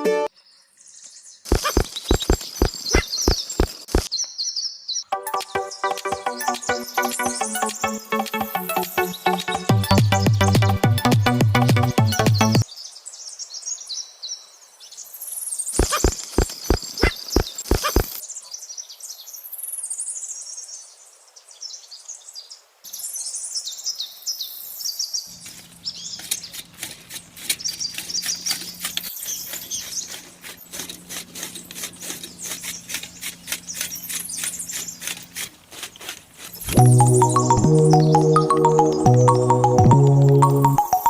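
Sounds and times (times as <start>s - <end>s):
birds chirping and singing: 0.5s - 10.7s, 15.7s - 18.2s
sharp clicks: 1.5s - 4.2s, 15.8s - 18.2s.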